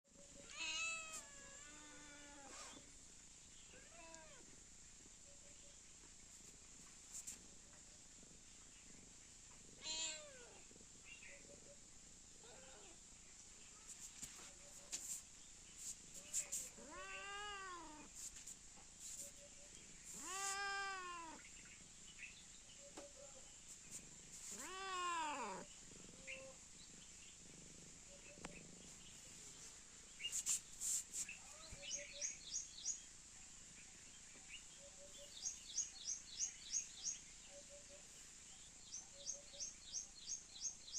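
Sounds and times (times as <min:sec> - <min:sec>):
cat meowing: 0:00.4 - 0:02.5, 0:09.8 - 0:10.6, 0:16.6 - 0:18.1, 0:20.1 - 0:21.4, 0:24.5 - 0:26.6
bird chirping: 0:19.0 - 0:40.9.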